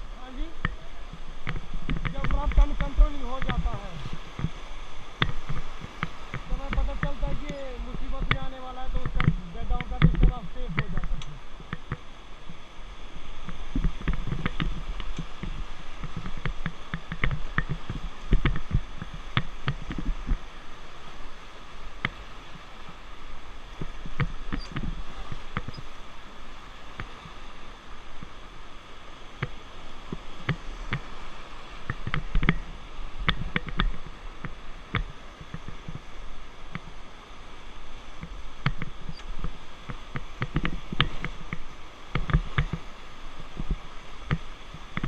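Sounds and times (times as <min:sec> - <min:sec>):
low rumbling thumps: 0:00.0 - 0:12.6
river water rushing and splashing: 0:00.0 - 0:45.0.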